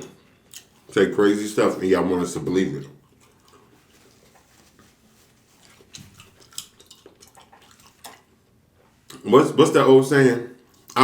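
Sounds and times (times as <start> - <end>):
soft chewing: 0.2 - 1.0, 2.7 - 9.3, 10.6 - 11.0
eating clicks and smacks: 0.5 - 1.0, 2.8 - 3.8, 5.6 - 8.3.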